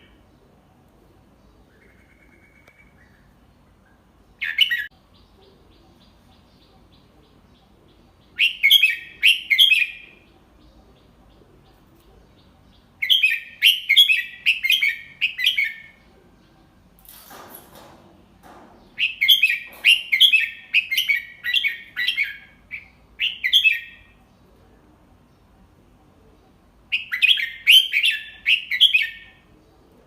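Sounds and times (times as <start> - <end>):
bird singing whistled notes: 26.9 - 29.3.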